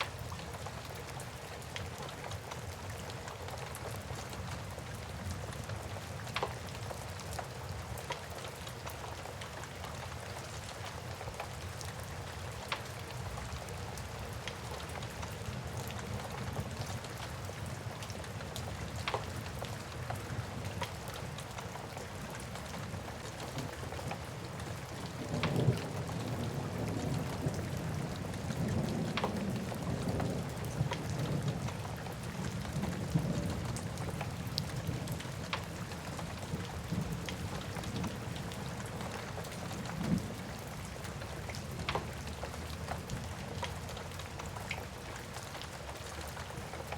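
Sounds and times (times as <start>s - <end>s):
steady rain: 0.0s - 46.9s
low rumble of thunder: 24.9s - 43.6s.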